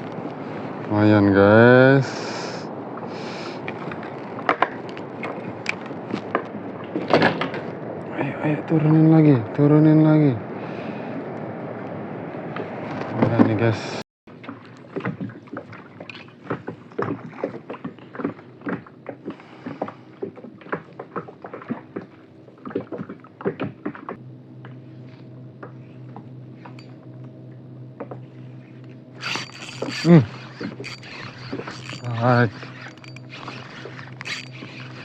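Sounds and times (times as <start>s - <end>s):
steady low hum: 7.7s - 35.0s
fishing tackle clicking and knocking: 29.2s - 35.0s.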